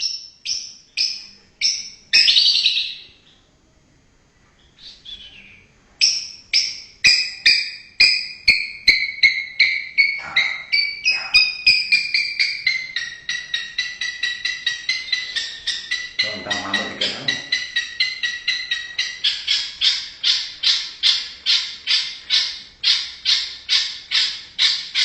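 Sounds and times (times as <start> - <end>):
bird calling sharp repeated notes: 6.0 - 25.0.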